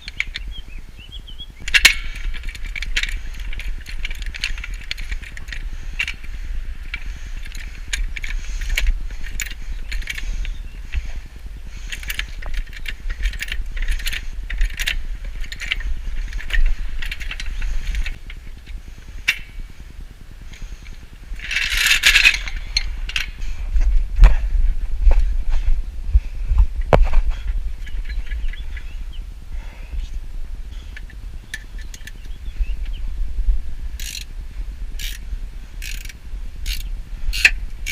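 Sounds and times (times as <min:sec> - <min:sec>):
steady low rumble: 0:00.0 - 0:37.9
metal hand tools clicking and scraping: 0:01.6 - 0:19.6, 0:20.5 - 0:23.5, 0:30.8 - 0:32.4, 0:34.0 - 0:34.3, 0:35.0 - 0:35.2, 0:35.8 - 0:37.9.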